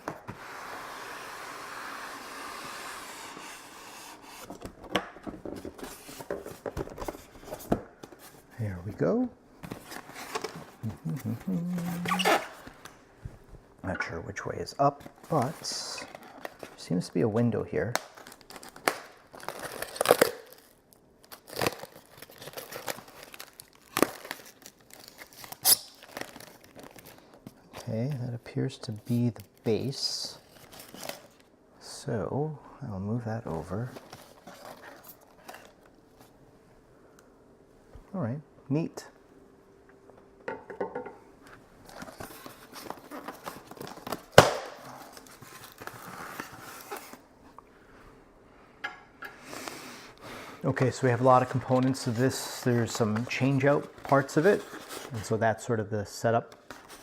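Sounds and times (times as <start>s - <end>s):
packaging crinkling and rustling: 17.9s - 28.2s, 28.8s - 31.5s, 33.9s - 36.4s, 41.8s - 47.3s, 50.7s - 55.4s, 56.5s - 57.0s
packaging ripping and scraping: 18.1s - 27.4s, 41.9s - 47.2s.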